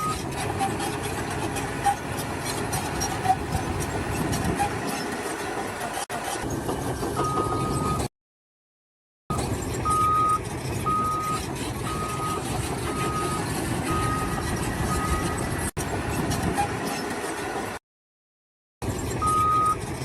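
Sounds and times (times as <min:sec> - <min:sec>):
vehicle engine rumble: 0:00.0 - 0:08.1, 0:09.3 - 0:17.8, 0:18.8 - 0:20.0
reversing alarm beeping: 0:09.3 - 0:15.5, 0:19.2 - 0:19.8.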